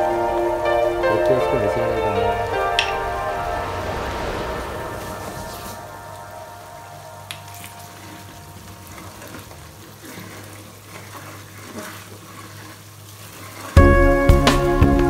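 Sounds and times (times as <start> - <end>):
loud music: 0.0 - 8.0
pickle bubbling and sizzling in pot: 5.7 - 14.9
spatula stirring and scraping: 7.6 - 13.8.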